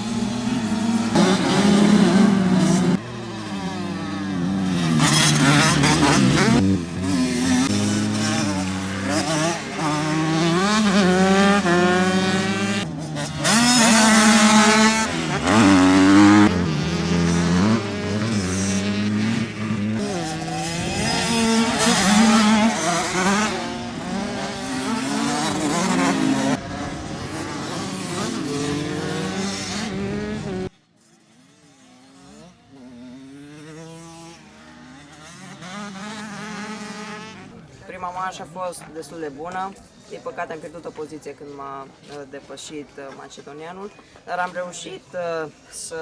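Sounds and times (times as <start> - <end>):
motorcycle engines revving: 0.0 - 42.2.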